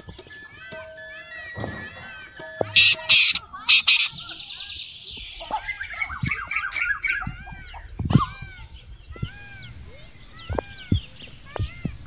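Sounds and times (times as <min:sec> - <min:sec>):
birds chirping: 0:00.0 - 0:12.0
harsh bird squawks: 0:02.6 - 0:04.6, 0:05.4 - 0:07.9.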